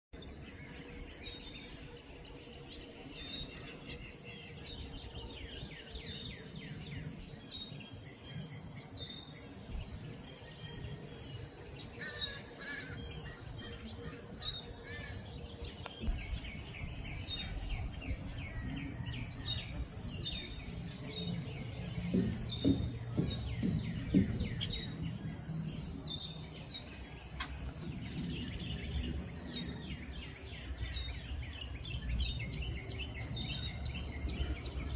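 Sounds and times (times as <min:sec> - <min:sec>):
songbirds chirping: 0:00.2 - 0:34.9
loud low knocks: 0:19.5 - 0:28.0.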